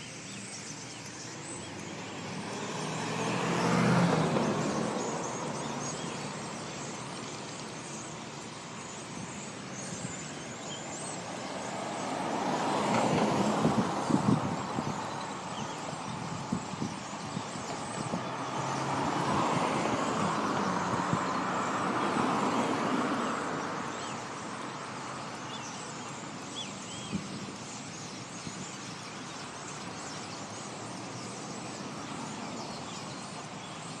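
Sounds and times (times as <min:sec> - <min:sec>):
traffic noise: 0:00.0 - 0:34.0
vehicle passing: 0:02.1 - 0:07.5, 0:17.4 - 0:25.2.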